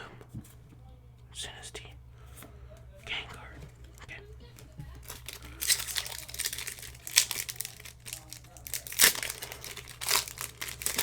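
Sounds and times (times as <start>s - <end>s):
wrapper crinkling and tearing: 4.5s - 11.0s.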